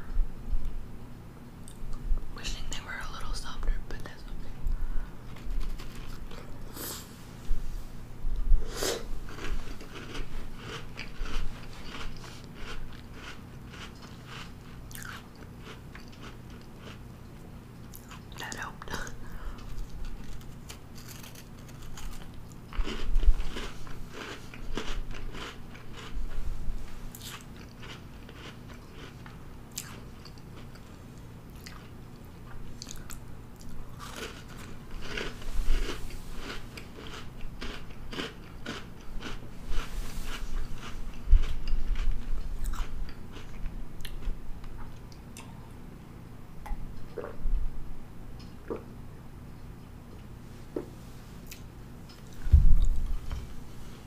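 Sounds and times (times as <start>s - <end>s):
quiet chewing: 4.0s - 6.8s, 9.3s - 26.2s, 27.1s - 45.7s, 51.4s - 53.6s
cookie crunching: 5.2s - 6.6s, 9.3s - 17.0s, 17.8s - 26.2s, 27.1s - 30.8s, 32.5s - 45.1s.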